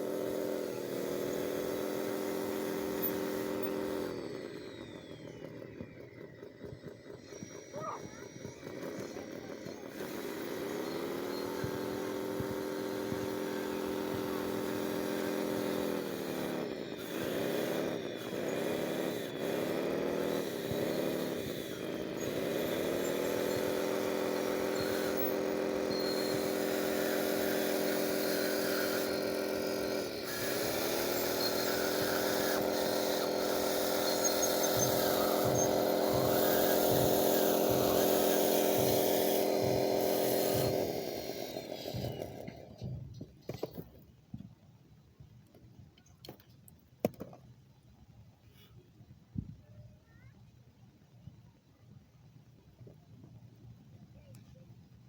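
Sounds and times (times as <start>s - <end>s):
electric motor whine: 0.0s - 43.8s.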